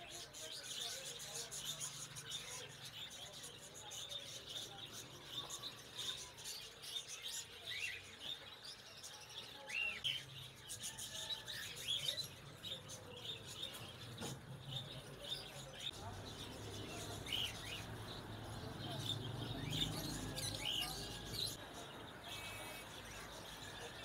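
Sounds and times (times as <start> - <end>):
caged birds chirping: 0.0 - 24.0.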